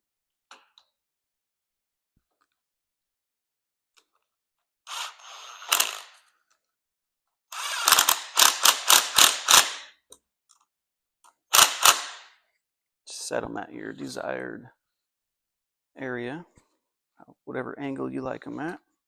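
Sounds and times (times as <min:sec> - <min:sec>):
ratchet clicking: 0:04.9 - 0:06.2, 0:07.5 - 0:09.9, 0:11.5 - 0:12.2.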